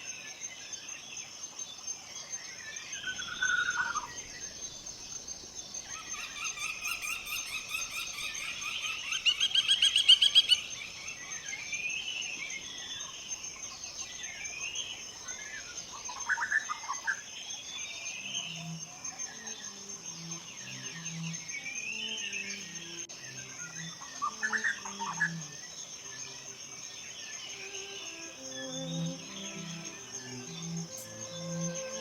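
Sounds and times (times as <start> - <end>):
high insect trill: 0.0 - 32.0
bird calls and chirping: 5.8 - 18.7.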